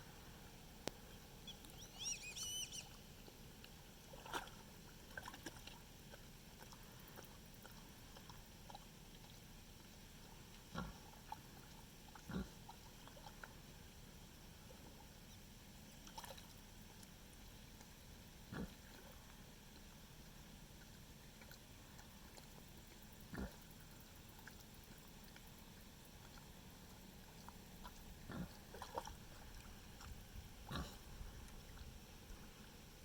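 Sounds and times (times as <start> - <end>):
high warbling chirp: 1.8 - 3.0
pig grunting: 10.7 - 11.0, 12.3 - 12.6, 18.5 - 18.8, 23.3 - 23.6, 28.2 - 28.7, 30.6 - 31.1.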